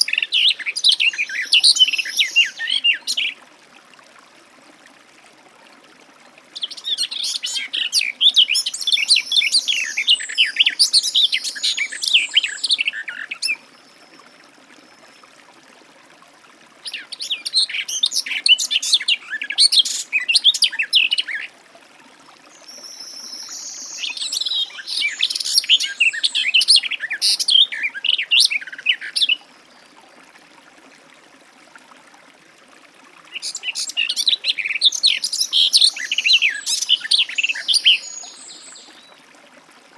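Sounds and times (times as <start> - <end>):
warbler singing: 6.6 - 13.6.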